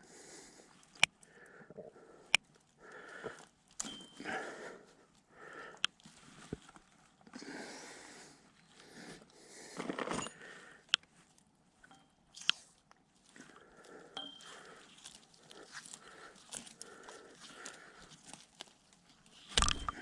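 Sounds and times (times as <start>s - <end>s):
sharp clicks and crunching: 14.4s - 20.0s.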